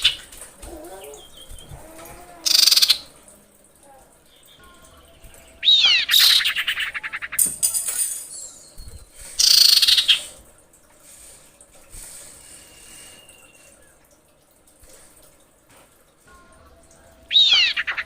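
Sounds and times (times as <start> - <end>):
bird whistle and rattling chatter: 2.4 - 3.1, 4.3 - 10.3, 17.3 - 18.0
harsh hissing bird call: 2.4 - 3.1, 9.2 - 10.4, 12.0 - 13.8, 17.3 - 18.0
thin steady whistle: 12.4 - 13.9.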